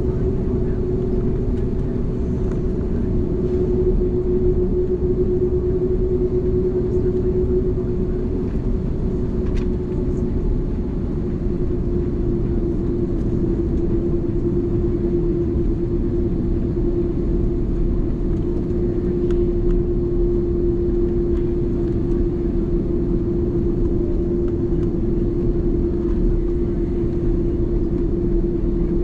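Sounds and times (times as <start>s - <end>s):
constant hum: 0.0s - 29.0s
jet engines rumbling in cabin: 0.0s - 29.0s.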